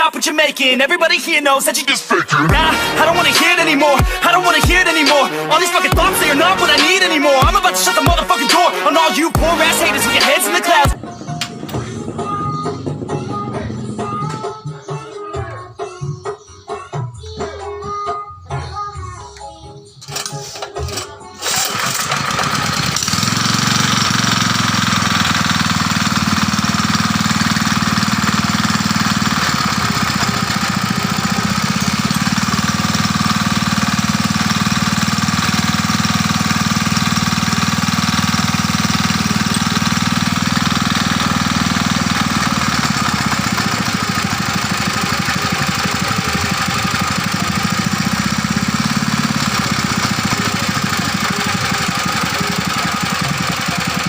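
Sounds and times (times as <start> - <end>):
diesel engine knocking: 9.4 - 10.3, 21.7 - 54.0.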